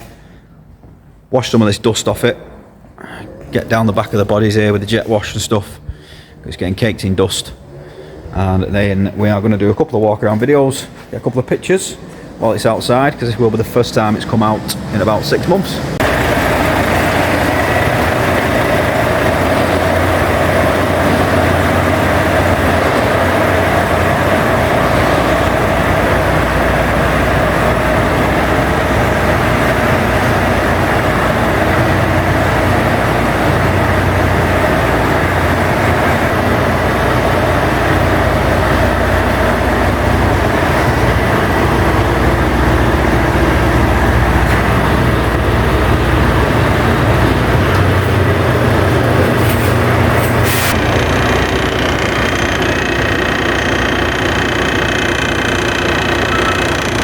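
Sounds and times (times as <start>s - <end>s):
diesel engine running: 2.6s - 57.0s.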